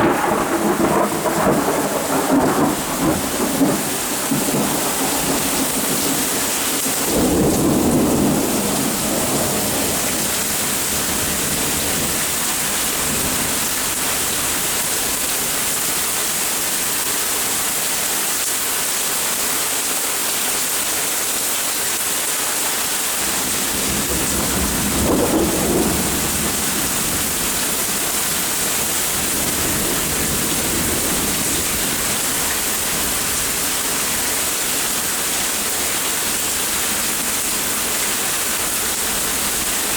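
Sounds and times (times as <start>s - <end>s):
thunder rumbles: 0.0s - 15.4s, 23.2s - 37.8s
steady rain: 0.0s - 39.9s.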